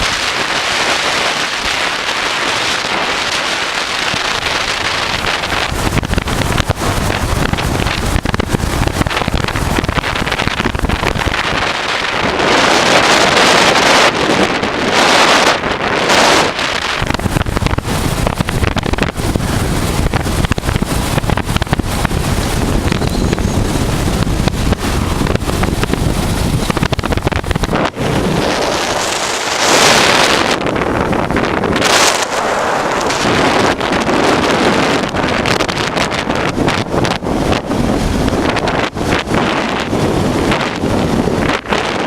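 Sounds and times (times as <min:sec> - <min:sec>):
wind rushing over microphone: 0:00.0 - 0:42.0
motorcycle engine running: 0:04.5 - 0:11.7, 0:16.2 - 0:29.2.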